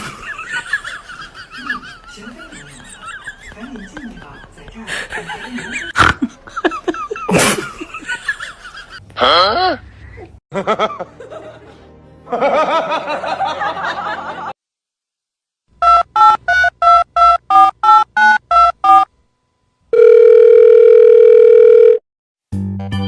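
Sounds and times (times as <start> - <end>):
person speaking: 1.6 - 5.9
steady dial tone: 19.9 - 22.0.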